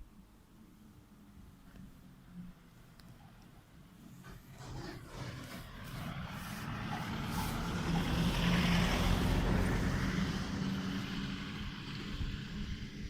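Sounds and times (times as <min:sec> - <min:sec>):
vehicle engine running: 0:03.9 - 0:13.0.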